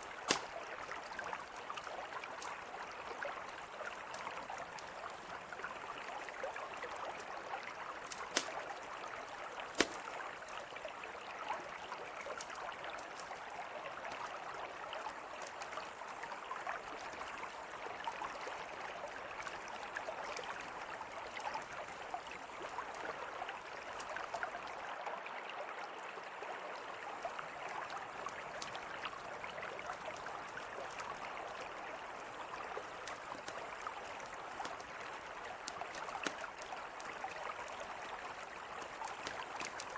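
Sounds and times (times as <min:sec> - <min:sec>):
campfire crackling and popping: 0:00.0 - 0:02.8, 0:08.0 - 0:09.0, 0:09.6 - 0:10.6, 0:32.8 - 0:39.9
river flowing: 0:00.0 - 0:39.9.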